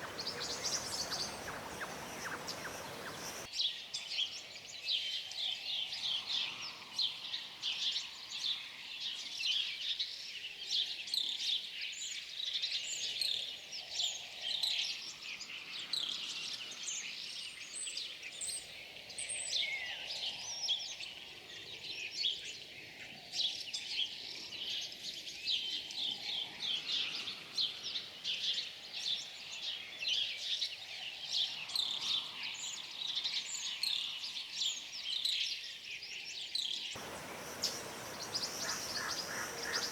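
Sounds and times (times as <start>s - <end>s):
small birds chirping: 0.0s - 3.5s, 28.9s - 39.9s.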